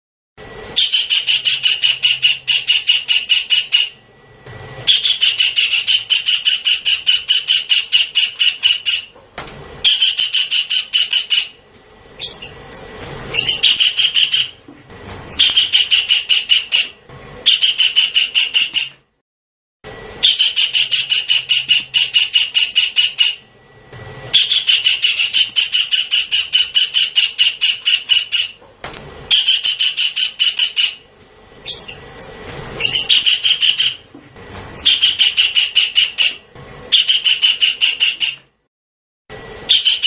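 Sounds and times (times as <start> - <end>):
kingfisher rattling call: 0.8 - 4.0, 4.9 - 9.1, 9.8 - 11.6, 12.2 - 14.6, 15.3 - 18.9, 20.2 - 23.4, 24.3 - 28.6, 29.3 - 31.0, 31.6 - 34.0, 34.8 - 38.4.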